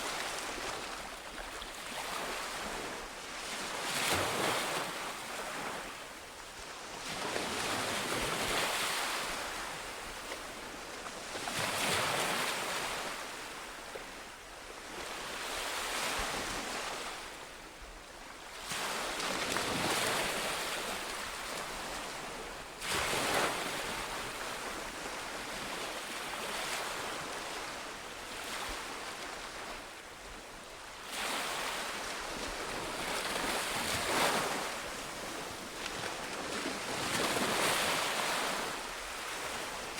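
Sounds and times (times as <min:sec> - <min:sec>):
ocean waves breaking on beach: 0:30.9 - 0:39.9.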